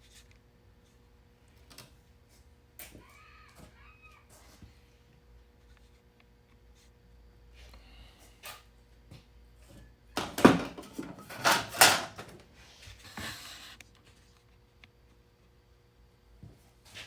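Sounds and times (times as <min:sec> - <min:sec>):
objects knocking and scraping: 0:09.7 - 0:12.4.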